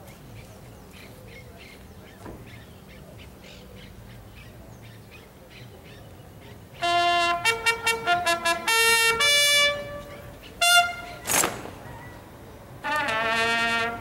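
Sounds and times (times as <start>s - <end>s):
faint low outdoor hum: 0.0s - 14.0s
trumpet call: 6.8s - 14.0s.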